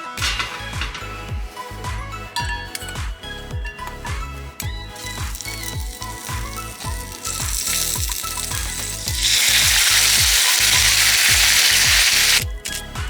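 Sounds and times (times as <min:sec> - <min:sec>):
background music with steady beat: 0:00.0 - 0:13.0
food sizzling in a frying pan: 0:04.9 - 0:12.8.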